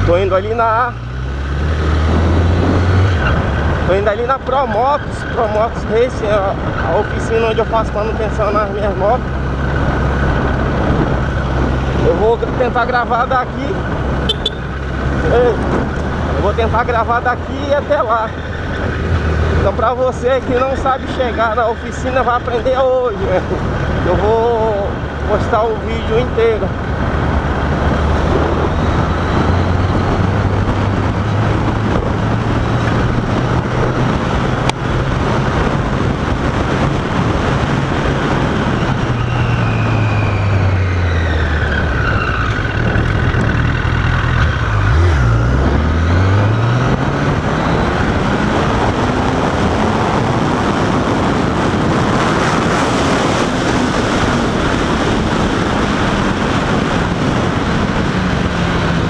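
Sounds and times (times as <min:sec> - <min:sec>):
wind noise: 0:00.0 - 0:59.0
motorcycle engine running: 0:13.8 - 0:17.4.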